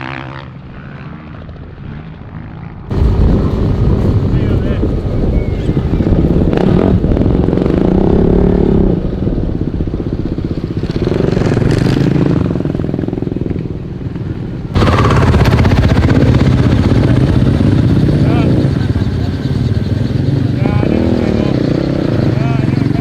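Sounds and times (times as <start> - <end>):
dirt bike engine revving: 2.9 - 9.2, 10.6 - 13.4, 14.8 - 23.0.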